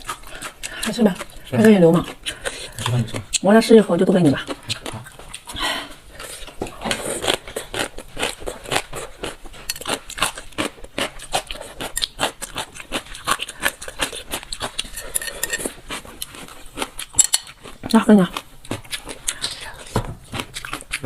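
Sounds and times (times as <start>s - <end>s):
crunchy chewing: 0.0s - 3.5s, 4.3s - 21.0s.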